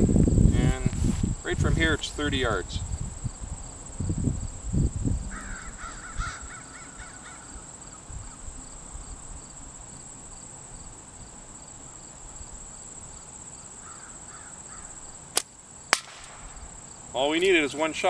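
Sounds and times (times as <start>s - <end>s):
bird calling: 5.3s - 8.4s.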